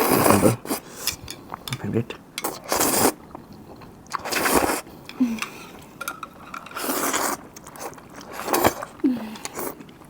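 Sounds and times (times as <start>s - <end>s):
wet eating bursts: 0.0s - 1.8s, 2.4s - 6.0s
chewing noodles: 2.4s - 10.0s.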